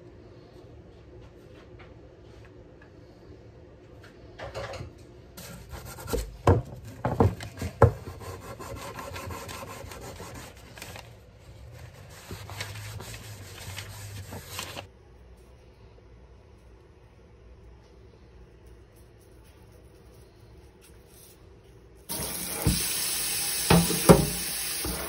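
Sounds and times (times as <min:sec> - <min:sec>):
hand scraping and rubbing metal: 0:07.6 - 0:15.7.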